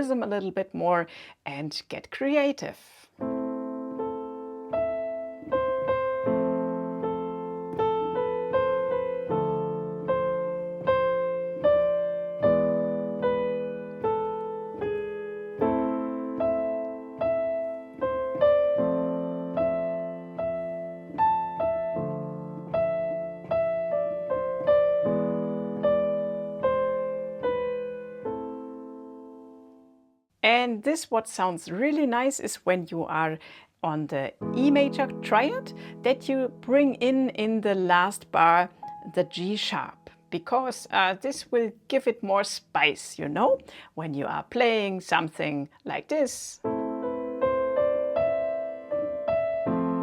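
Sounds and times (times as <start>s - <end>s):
piano chords: 3.2s - 30.2s, 34.4s - 40.4s, 46.6s - 50.0s
piano melody: 3.2s - 30.2s, 34.3s - 40.4s, 46.6s - 50.0s.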